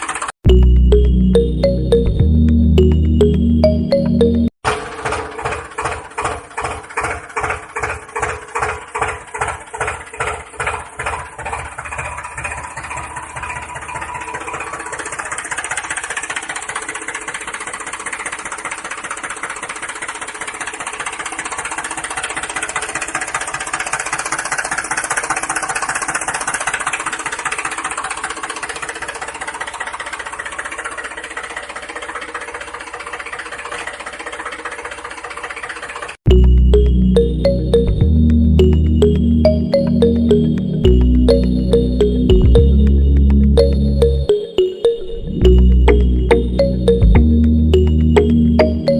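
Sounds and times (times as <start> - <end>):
engine chugging: 0.0 - 44.7, 45.4 - 48.9.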